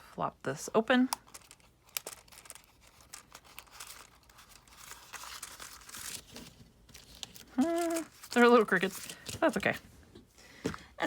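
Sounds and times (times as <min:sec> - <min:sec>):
paper rustling and crinkling: 0:01.3 - 0:10.0.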